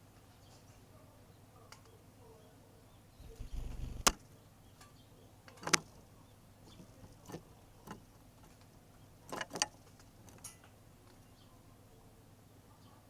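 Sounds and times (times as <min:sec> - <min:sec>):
low rumble: 0:03.2 - 0:04.1
bird pecking taps: 0:03.2 - 0:04.2.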